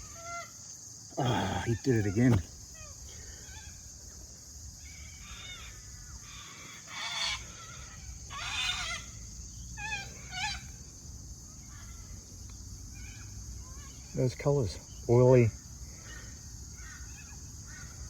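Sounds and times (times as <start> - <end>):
birds calling: 1.1 - 3.9.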